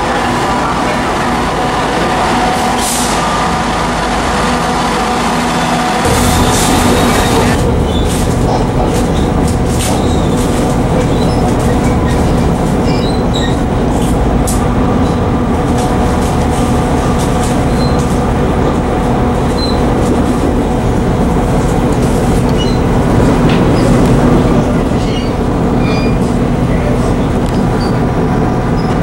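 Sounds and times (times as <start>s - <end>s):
train rumbling: 0.0s - 29.0s
wheels clicking on rails: 6.0s - 29.0s.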